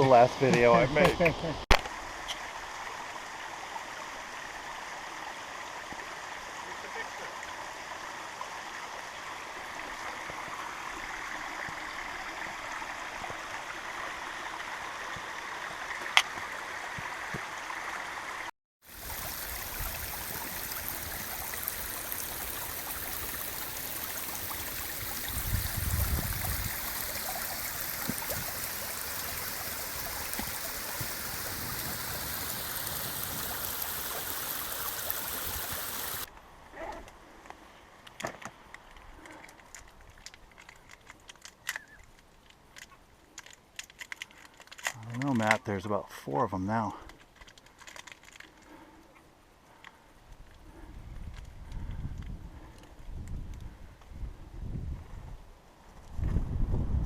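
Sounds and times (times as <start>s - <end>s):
flowing water rushing: 0.0s - 36.3s.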